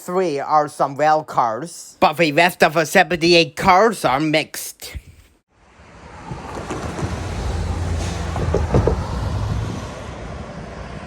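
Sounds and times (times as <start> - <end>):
locomotive diesel engines rumbling: 5.8 - 11.0.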